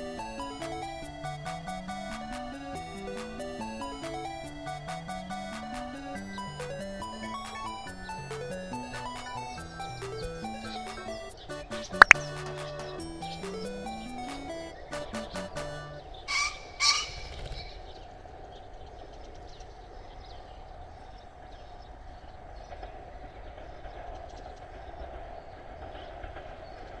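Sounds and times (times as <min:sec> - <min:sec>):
background music: 0:00.0 - 0:16.2
pheasant crowing: 0:00.0 - 0:18.1.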